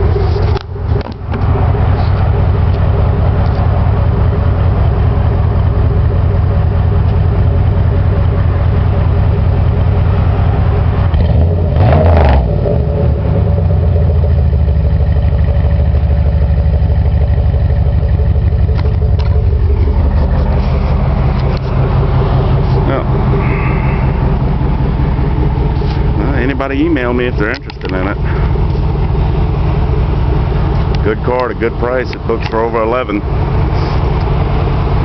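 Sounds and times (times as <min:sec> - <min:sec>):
car engine idling and revving: 0:00.0 - 0:35.0.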